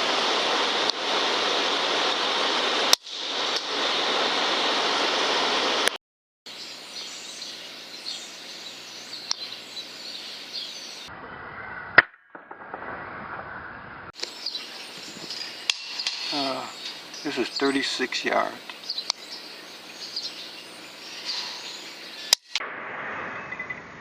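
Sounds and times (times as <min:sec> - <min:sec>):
steady rushing noise: 0:00.0 - 0:06.0, 0:12.5 - 0:24.0
faint bird chirping: 0:06.5 - 0:12.0, 0:14.2 - 0:22.5.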